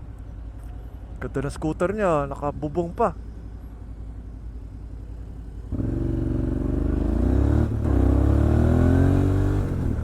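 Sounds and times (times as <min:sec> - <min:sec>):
motorcycle engine accelerating: 0:05.7 - 0:10.0.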